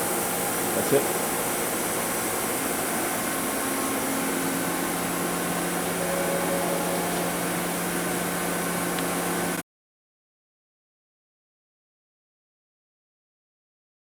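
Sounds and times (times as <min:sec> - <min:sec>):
machine hum and hiss: 0:00.0 - 0:09.6
low even tone: 0:06.0 - 0:09.0.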